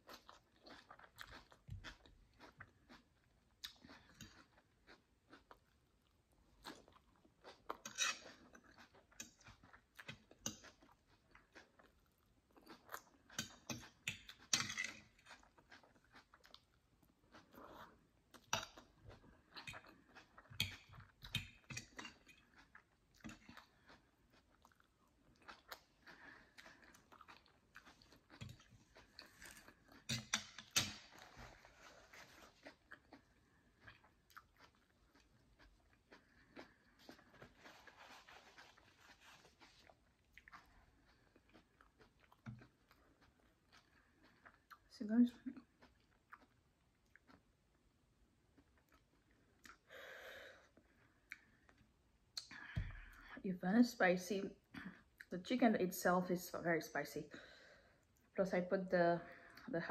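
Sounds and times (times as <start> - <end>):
close chewing with crunches: 0.0 - 47.8.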